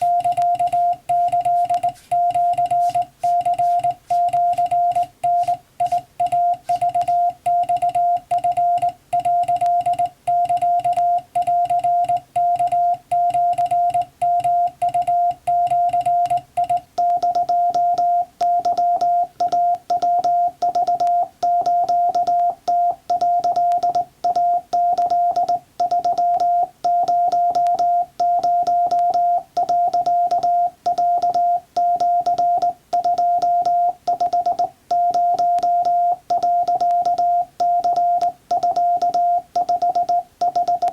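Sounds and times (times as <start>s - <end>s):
morse code beeps: 0.0s - 40.9s.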